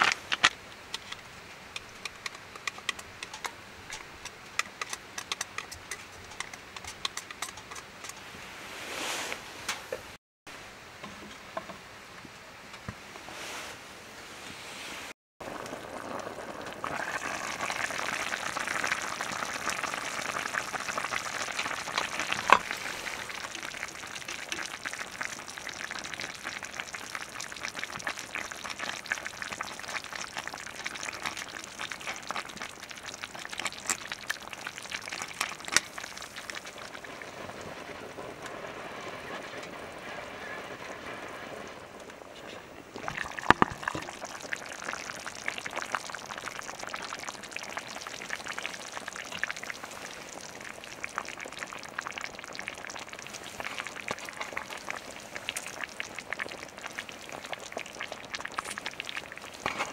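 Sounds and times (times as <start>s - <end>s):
food sizzling in a pan: 15.4s - 42.0s, 43.0s - 59.9s.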